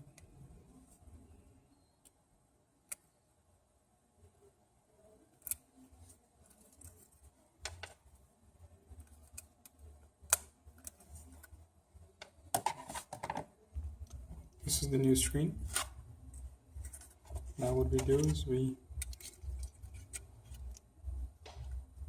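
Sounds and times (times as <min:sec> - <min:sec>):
small tools clicking and tapping: 0:19.0 - 0:20.8.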